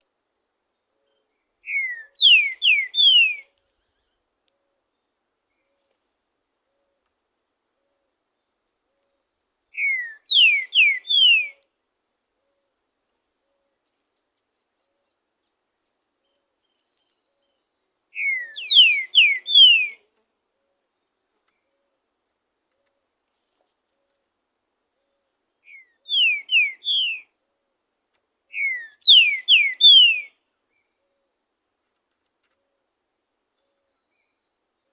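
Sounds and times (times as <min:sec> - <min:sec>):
bird whistling descending notes: 0:01.7 - 0:03.4, 0:25.7 - 0:27.2, 0:28.6 - 0:30.3.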